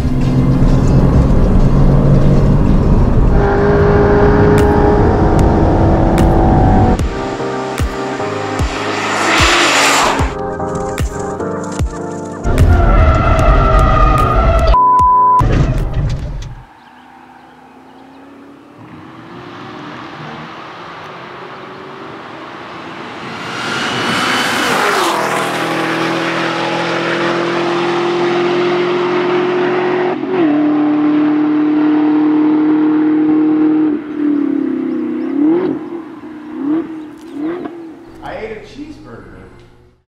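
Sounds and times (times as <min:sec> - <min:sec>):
car engine at full throttle: 0:00.0 - 0:11.4, 0:15.9 - 0:38.2.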